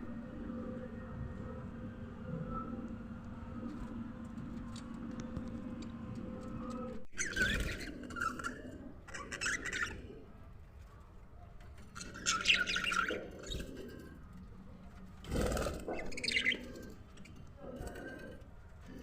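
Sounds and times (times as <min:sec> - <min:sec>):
budgerigars chirping and chattering: 0:07.2 - 0:10.0, 0:11.9 - 0:13.8, 0:15.3 - 0:17.4.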